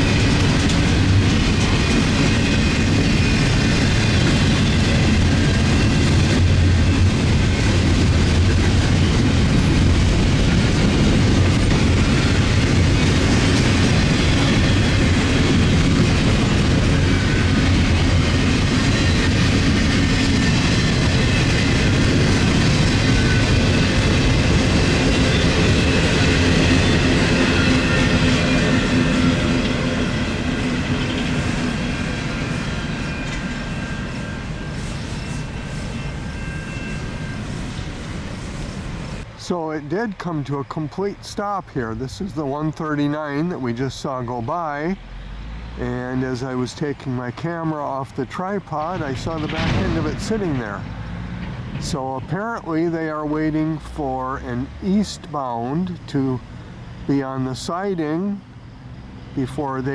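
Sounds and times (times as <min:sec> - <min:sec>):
clickety-clack over rail joints: 0:00.0 - 0:39.3, 0:46.9 - 0:55.4
freight train wheels rumbling: 0:00.0 - 0:59.9.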